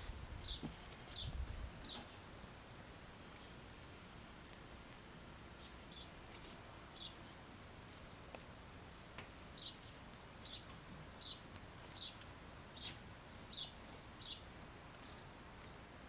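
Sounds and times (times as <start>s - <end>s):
bird chirping: 0.0s - 2.3s, 5.5s - 8.2s, 8.8s - 15.9s.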